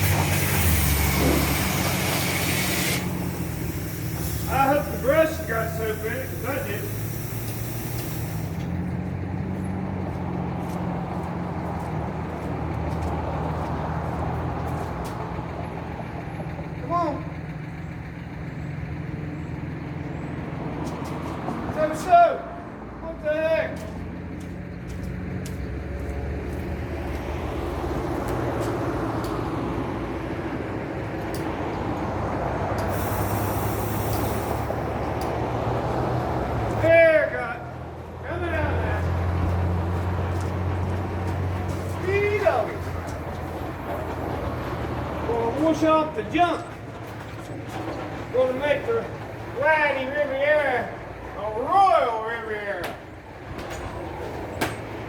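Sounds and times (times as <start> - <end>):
water spray hissing: 0.0 - 8.8, 32.8 - 35.0
car wash equipment humming: 0.0 - 9.4, 26.4 - 55.0
faint clicks: 35.2 - 35.4.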